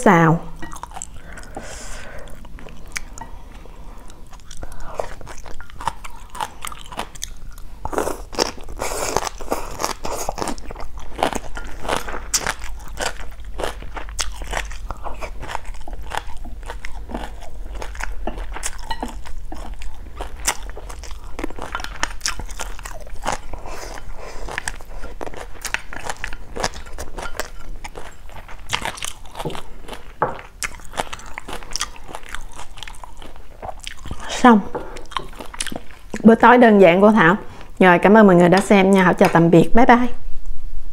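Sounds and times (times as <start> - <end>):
crisp chewing and crunching: 4.0 - 34.3, 34.9 - 36.3.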